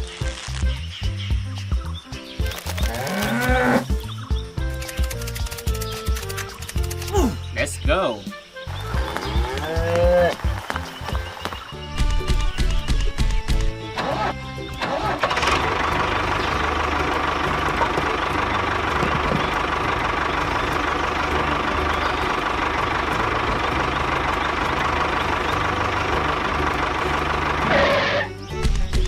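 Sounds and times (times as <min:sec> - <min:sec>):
small tractor motor running: 0:04.7 - 0:07.2, 0:14.7 - 0:28.3.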